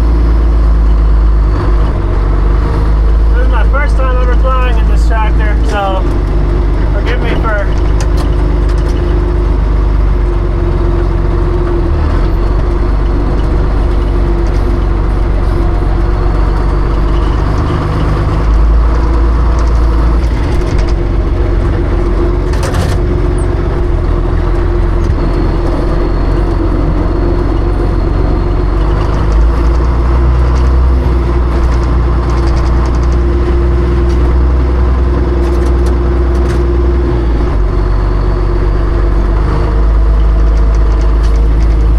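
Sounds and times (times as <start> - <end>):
tractor engine rumbling: 0.0 - 41.9.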